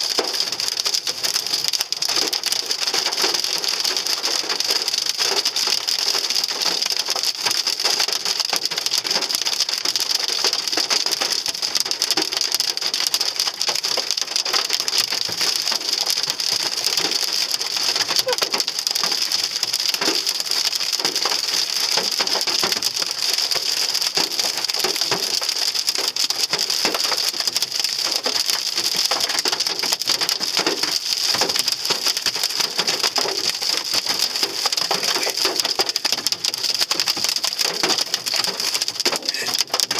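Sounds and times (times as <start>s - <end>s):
hail clattering on car roof: 0.0s - 39.9s.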